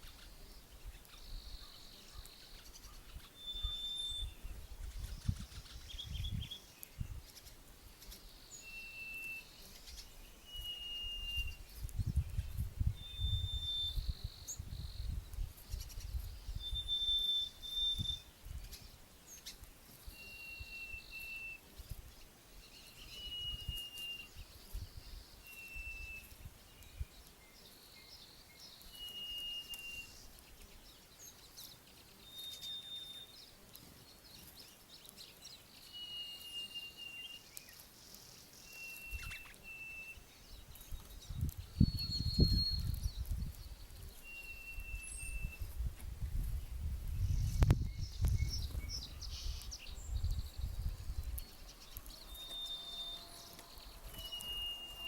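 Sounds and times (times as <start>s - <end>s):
bird whistling: 3.3s - 4.4s, 8.6s - 9.6s, 10.4s - 11.6s, 13.0s - 14.4s, 16.5s - 18.3s, 20.2s - 21.6s, 23.1s - 24.3s, 25.5s - 26.3s, 28.9s - 30.2s, 32.2s - 33.4s, 35.9s - 37.5s, 38.6s - 40.2s, 41.8s - 42.9s, 44.2s - 45.6s, 52.2s - 53.5s, 54.2s - 55.0s.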